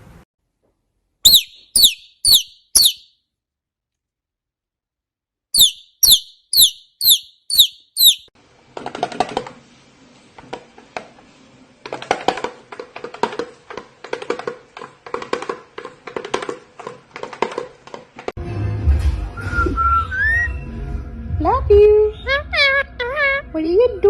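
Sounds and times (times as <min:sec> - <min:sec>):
parrot high chirps: 0:01.2 - 0:03.1, 0:05.6 - 0:08.3.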